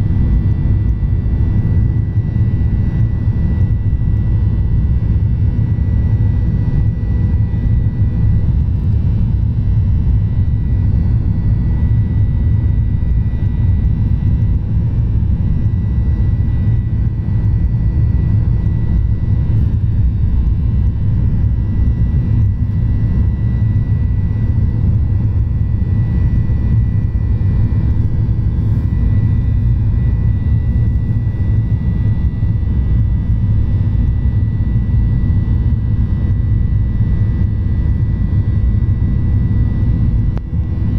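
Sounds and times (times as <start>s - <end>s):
high engine whine: 0.0s - 40.9s
jet engines rumbling: 0.0s - 40.9s.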